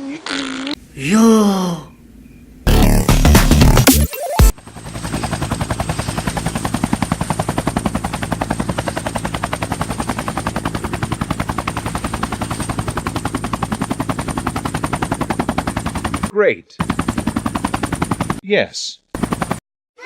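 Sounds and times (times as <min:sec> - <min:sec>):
fast steady rattle: 0:04.6 - 0:18.4, 0:19.2 - 0:19.6.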